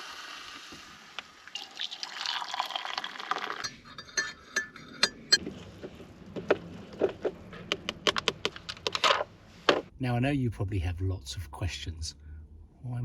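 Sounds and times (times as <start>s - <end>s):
hot water pouring into container: 0.0s - 3.7s
sharp clicks and knocks: 6.3s - 9.9s.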